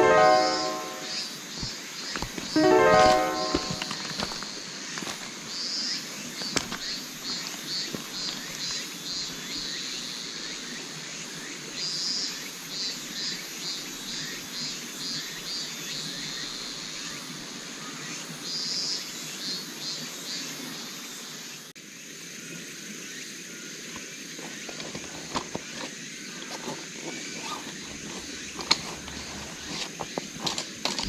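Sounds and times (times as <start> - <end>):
insect chirping: 3.8 - 16.9, 21.9 - 31.0.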